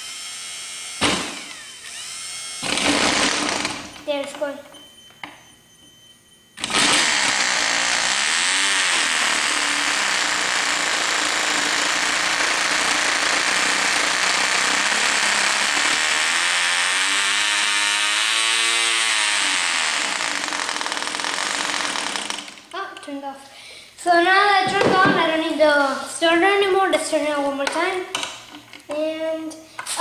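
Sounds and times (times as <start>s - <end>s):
model engine high buzzing scream: 6.6s - 22.5s.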